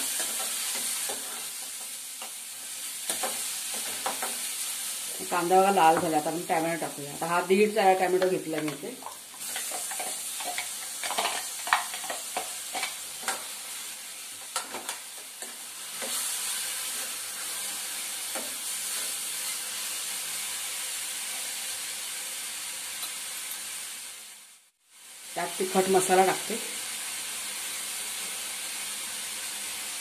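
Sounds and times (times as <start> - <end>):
vegetables sizzling in oil: 0.0 - 30.0
metal spoon scraping pan: 9.4 - 13.4.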